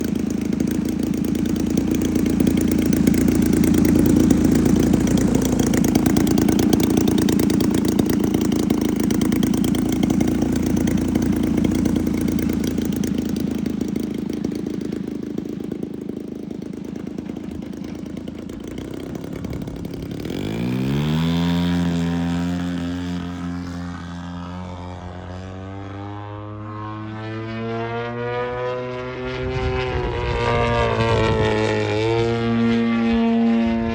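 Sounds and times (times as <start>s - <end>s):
model airplane engine running: 0.0s - 33.9s.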